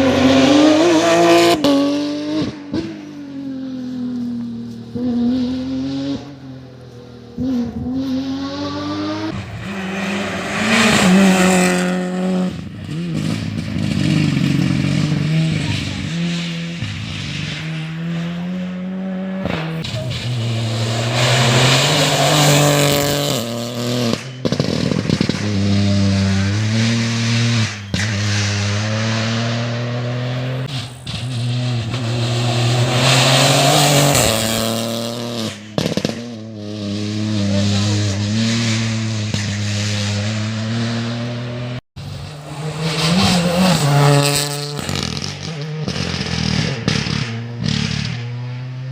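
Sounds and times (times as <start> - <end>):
rally cars at full throttle: 0.0 - 48.9.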